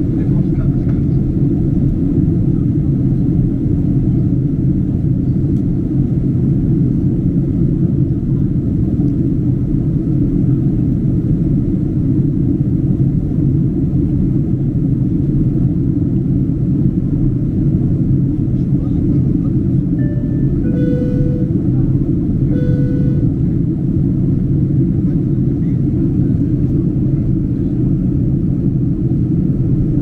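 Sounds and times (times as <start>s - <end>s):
airplane cabin engine and airflow noise: 0.0s - 30.0s
faint steady hum: 19.8s - 23.9s.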